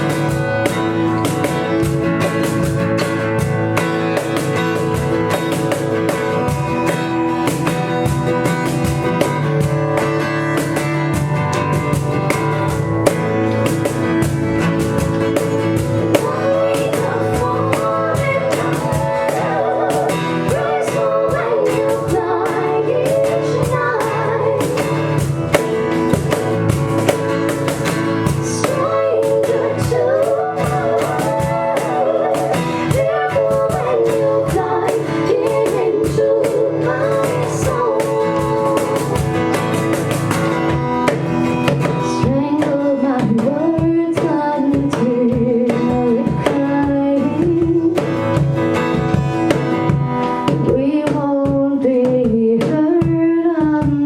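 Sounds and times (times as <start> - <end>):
drum kit beat: 0.0 - 54.0
guitar: 0.0 - 54.0
person singing: 14.4 - 26.0, 28.2 - 40.2, 41.9 - 48.4.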